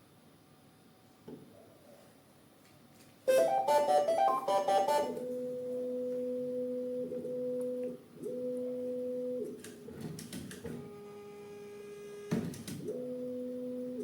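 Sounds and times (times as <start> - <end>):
rising electronic notes: 3.3 - 5.3
steady two-pitch tone: 3.3 - 7.7.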